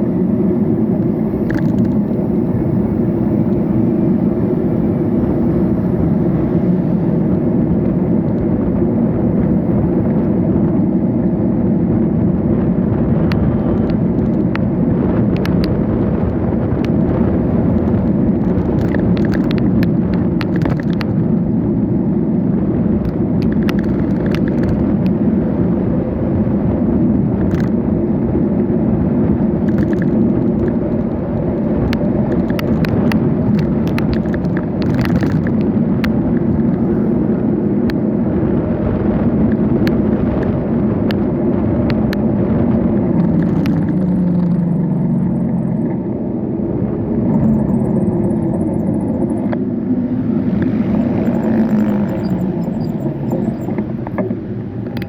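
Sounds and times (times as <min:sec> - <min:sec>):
bicycle tyres on road: 0:00.0 - 0:55.0
wind: 0:00.0 - 0:55.0
sharp rattling clicks: 0:17.7 - 0:21.2, 0:23.0 - 0:24.9, 0:29.5 - 0:35.7, 0:43.2 - 0:46.0
low hum shifting in pitch: 0:42.3 - 0:55.0.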